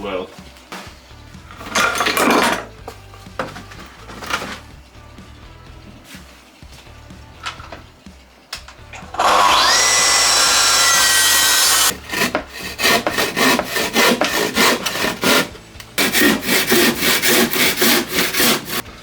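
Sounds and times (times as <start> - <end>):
track saw cutting timber: 9.0 - 18.8
handsaw rasping through wood: 9.1 - 18.8.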